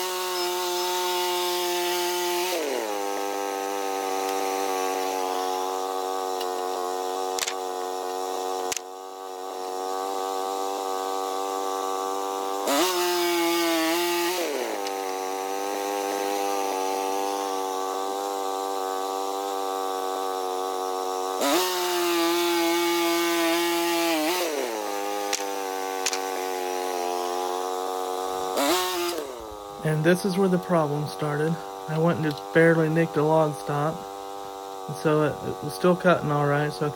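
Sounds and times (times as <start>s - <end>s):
gas engine running and revving: 0.0s - 36.9s
sharp clicks: 7.4s - 7.6s, 8.7s - 8.9s, 25.3s - 26.3s.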